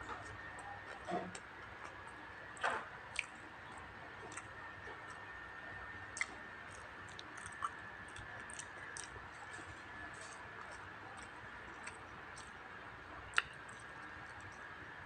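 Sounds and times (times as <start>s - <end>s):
person chewing: 4.2s - 5.2s, 6.1s - 9.6s, 10.2s - 12.6s
mouth clicks and smacks: 13.3s - 14.6s.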